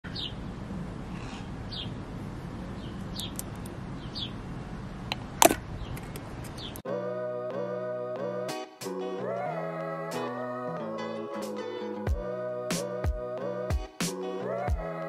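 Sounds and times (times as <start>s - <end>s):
small birds chirping: 0.0s - 6.8s.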